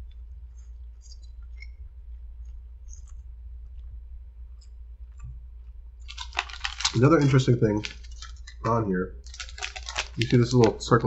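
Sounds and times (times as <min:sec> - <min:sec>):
low hum: 0:00.0 - 0:11.0
man chewing noodles: 0:04.6 - 0:07.0.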